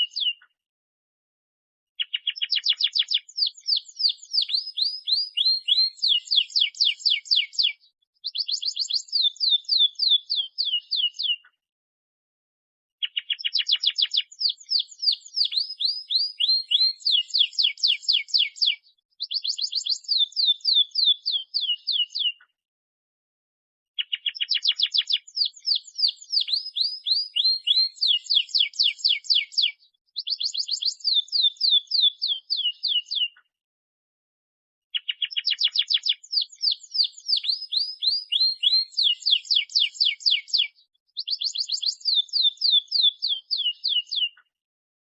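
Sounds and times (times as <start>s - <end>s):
canary singing trills: 0.0s - 0.4s, 2.0s - 11.5s, 13.0s - 22.4s, 24.0s - 33.4s, 34.9s - 44.4s.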